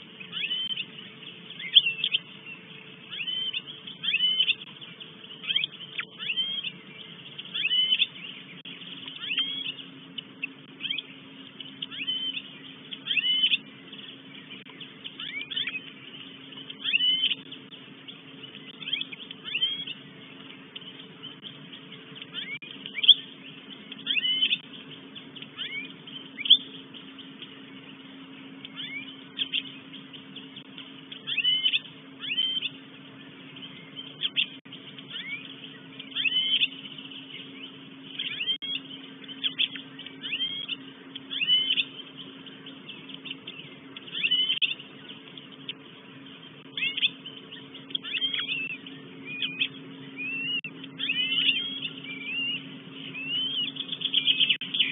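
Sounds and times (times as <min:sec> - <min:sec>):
bird calling: 0:00.0 - 0:54.9
steady low hum: 0:00.0 - 0:54.9.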